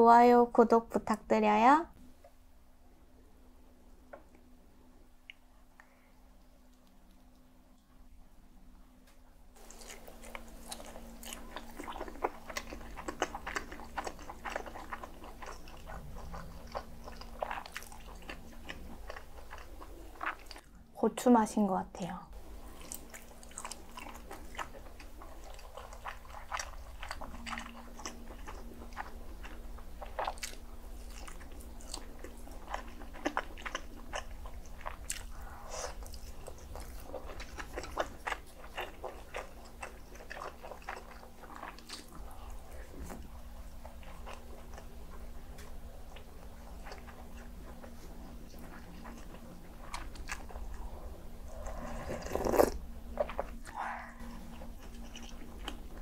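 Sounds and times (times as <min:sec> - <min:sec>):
faint steady hum: 0:00.0 - 0:56.0
person chewing and biting: 0:09.6 - 0:20.7, 0:22.6 - 0:56.0.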